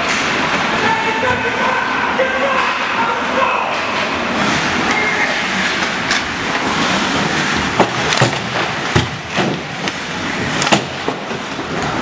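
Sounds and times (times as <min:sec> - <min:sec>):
sharp knocks: 0:07.8 - 0:09.7.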